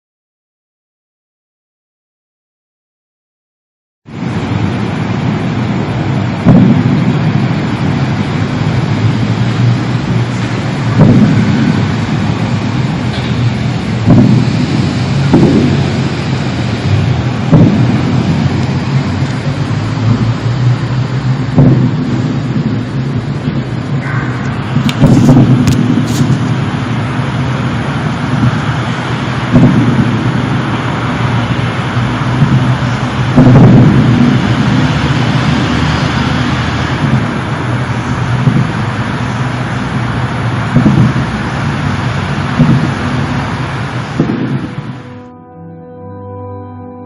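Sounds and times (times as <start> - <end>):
rumbling haze: 4.1 - 45.2
loud low boom: 4.1 - 45.4
low droning hum: 4.1 - 46.0
low thump: 6.4 - 7.3, 11.0 - 11.9, 13.1 - 16.1, 16.9 - 18.6, 21.5 - 22.9, 24.0 - 26.5, 29.5 - 30.4, 33.4 - 34.4, 40.7 - 41.3, 42.5 - 43.1, 44.2 - 45.0.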